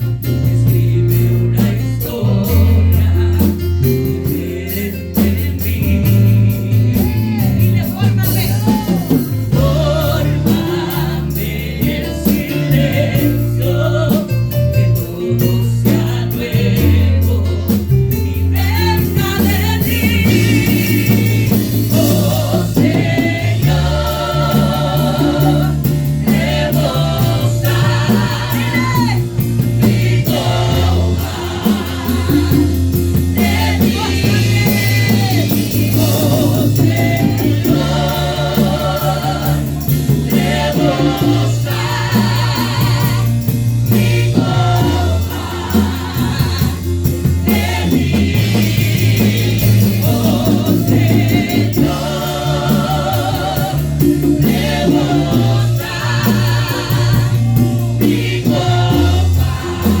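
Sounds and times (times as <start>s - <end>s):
group of singers: 0.0s - 60.0s
steady bass line: 0.0s - 60.0s
worship band playing: 0.0s - 60.0s.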